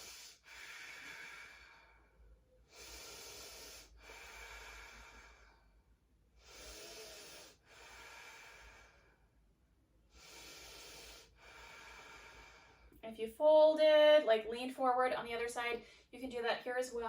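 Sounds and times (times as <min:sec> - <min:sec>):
woman breathing deeply: 0:00.0 - 0:09.4, 0:10.1 - 0:13.0.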